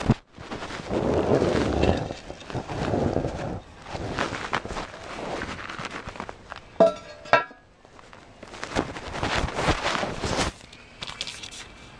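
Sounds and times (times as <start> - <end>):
scraping: 0.0 - 10.6.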